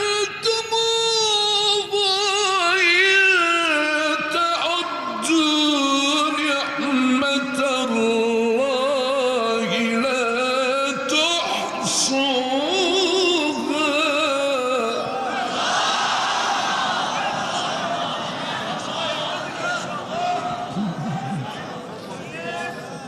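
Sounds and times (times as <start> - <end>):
man reciting melodically: 0.0 - 15.4.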